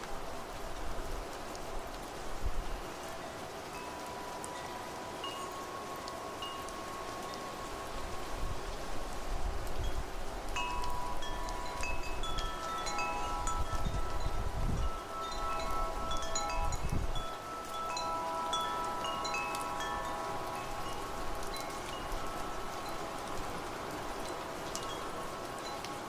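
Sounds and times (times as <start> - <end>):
wind rumbling on microphone: 0.0 - 3.1, 4.6 - 26.0
rain hiss: 0.0 - 26.0
metal wind chimes ringing: 2.9 - 26.0.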